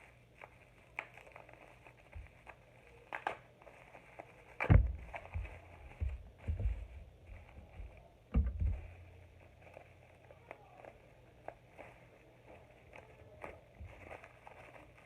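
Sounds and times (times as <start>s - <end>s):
plastic packaging clicks and crinkles: 0.0s - 15.0s
low bumps: 4.7s - 9.3s.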